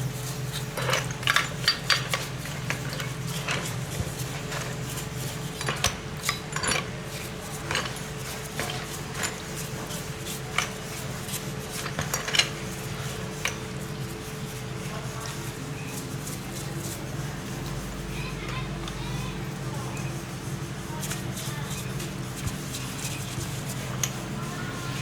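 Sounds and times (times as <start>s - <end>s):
low machine hum: 0.0s - 25.0s
metal tools clinking and scraping: 0.2s - 3.7s.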